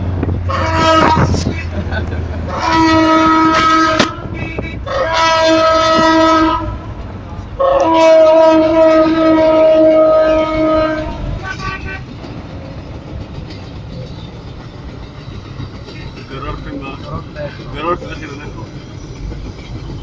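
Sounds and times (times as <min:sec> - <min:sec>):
train rumbling on track: 0:00.0 - 0:20.0
train horn blasts: 0:00.4 - 0:01.7, 0:02.5 - 0:07.0, 0:07.6 - 0:12.2.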